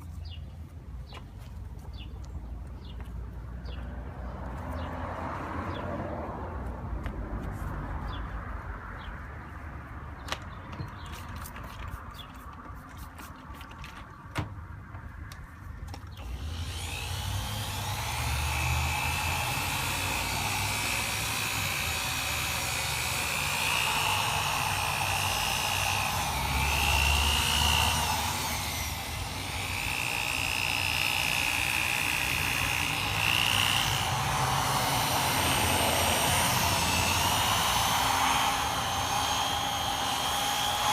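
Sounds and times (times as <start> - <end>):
power drill sanding whine: 16.2 - 40.9.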